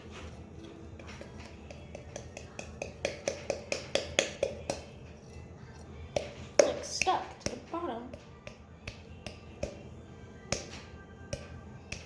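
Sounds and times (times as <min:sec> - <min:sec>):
stir stick clicking against bowl: 0:01.0 - 0:05.5.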